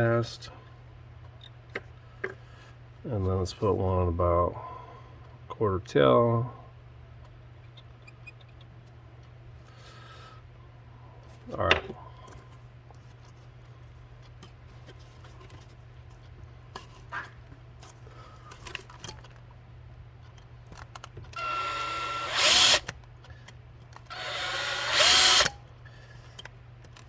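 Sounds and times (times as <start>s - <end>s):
power drill drilling: 21.4s - 22.9s, 24.1s - 25.6s.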